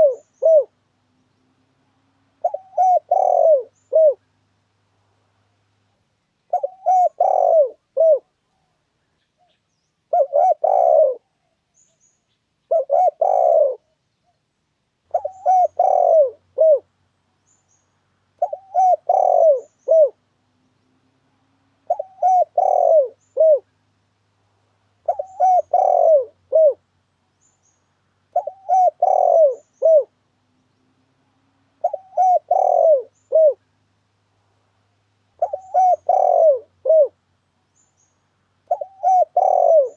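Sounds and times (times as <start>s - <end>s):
dove cooing: 0.0s - 0.8s, 2.3s - 4.3s, 6.5s - 8.7s, 10.1s - 11.6s, 12.7s - 13.9s, 15.1s - 16.9s, 18.4s - 20.3s, 21.8s - 23.7s, 25.0s - 26.8s, 28.3s - 30.2s, 31.2s - 33.7s, 35.4s - 37.2s, 38.7s - 39.9s.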